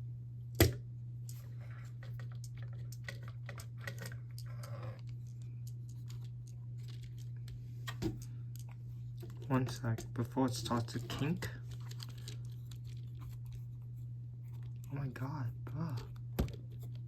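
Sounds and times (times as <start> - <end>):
steady low hum: 0.0 - 17.0
toy car plastic clicks and rattles: 9.2 - 13.1.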